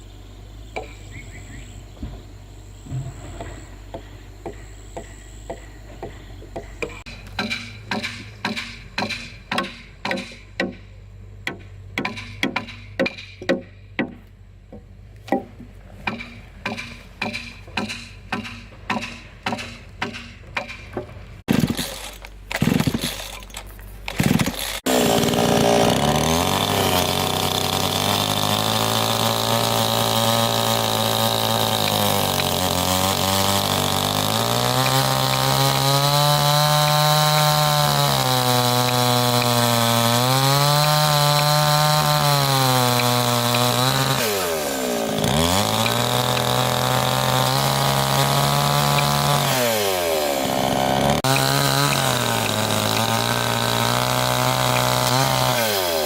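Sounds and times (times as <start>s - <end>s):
chainsaw cutting wood: 2.9s - 10.8s, 15.3s - 56.0s
sharp knocks: 2.9s - 21.9s.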